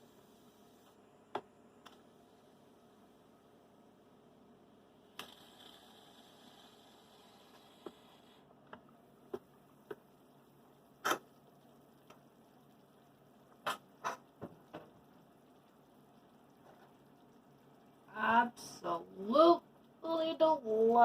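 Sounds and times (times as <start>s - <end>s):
faint clicks and taps: 8.6s - 10.2s, 11.0s - 12.3s.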